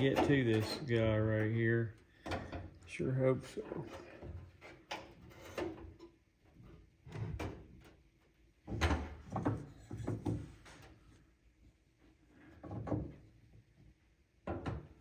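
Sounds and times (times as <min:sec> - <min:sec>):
metal rod clunking and scraping: 0:00.0 - 0:02.8, 0:03.6 - 0:06.2.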